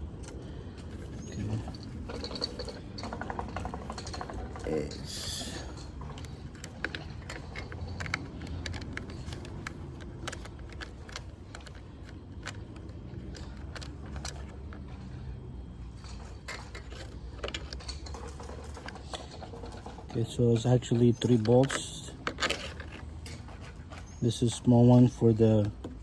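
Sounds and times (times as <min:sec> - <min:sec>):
low steady hum: 0:00.0 - 0:26.0
socket wrench clicking and rattling: 0:05.4 - 0:14.9, 0:16.4 - 0:24.6.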